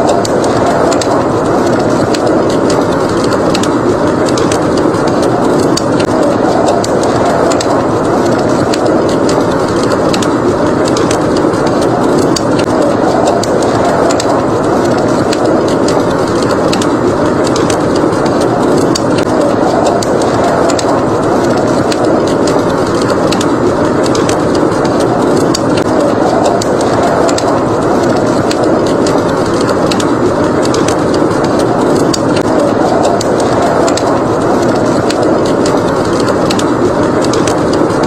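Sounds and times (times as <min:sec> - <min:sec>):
blizzard wind rushing: 0:00.0 - 0:38.0
wood fire crackling and popping: 0:00.0 - 0:38.0.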